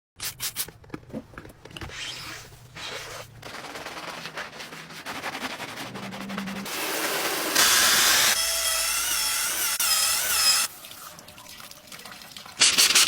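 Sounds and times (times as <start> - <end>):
scraping and rubbing: 1.2 - 8.0.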